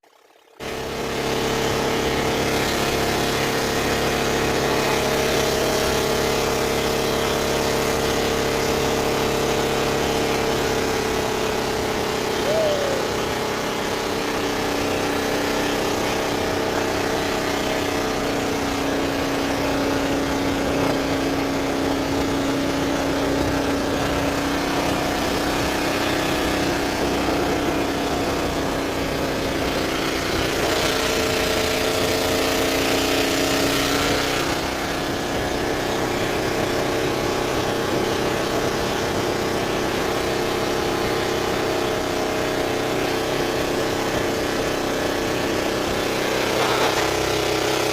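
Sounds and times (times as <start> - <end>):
boat engine running: 0.0 - 47.9.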